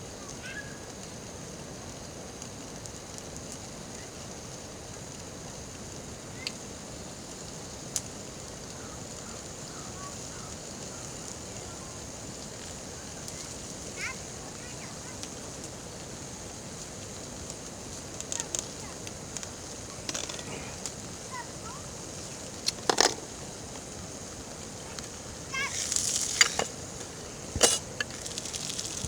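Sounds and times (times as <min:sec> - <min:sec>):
campfire crackling: 0:00.0 - 0:29.0
sharp fire pops: 0:16.8 - 0:29.0.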